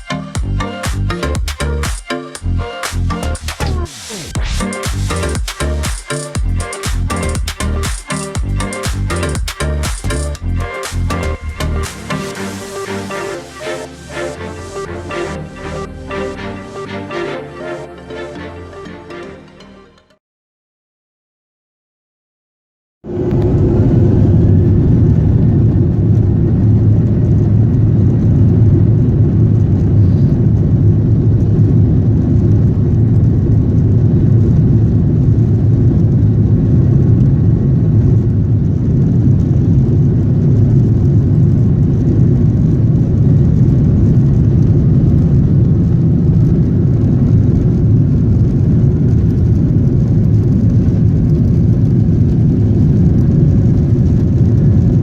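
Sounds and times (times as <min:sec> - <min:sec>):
jet engine cabin noise: 0:23.1 - 0:55.0.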